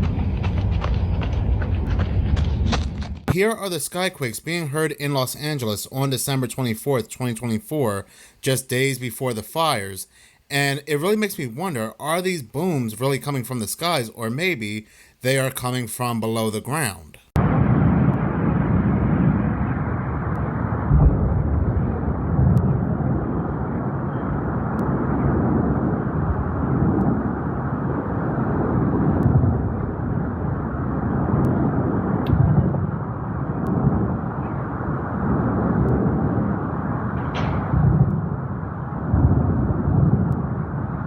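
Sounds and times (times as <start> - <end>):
continuous low rumble: 0.0 - 3.4, 17.4 - 41.0.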